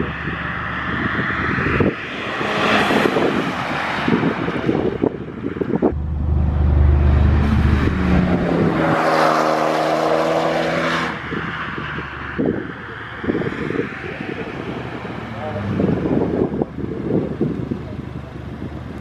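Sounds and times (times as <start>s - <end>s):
wind buffeting microphone: 0.0s - 9.3s
car engine accelerating: 1.7s - 11.4s.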